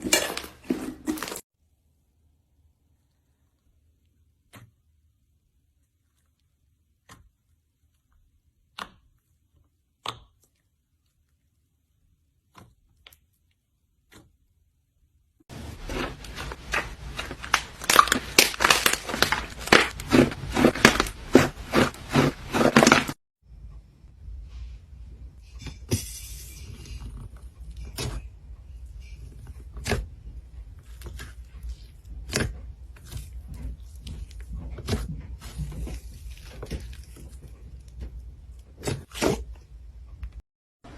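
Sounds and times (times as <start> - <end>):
slime crackling and popping: 15.9 - 23.2.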